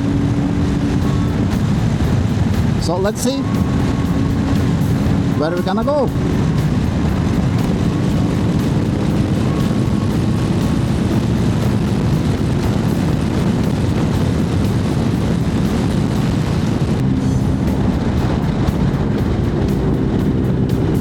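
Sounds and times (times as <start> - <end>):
motorcycle engine cruising: 0.0 - 21.0
wind rushing: 0.0 - 21.0.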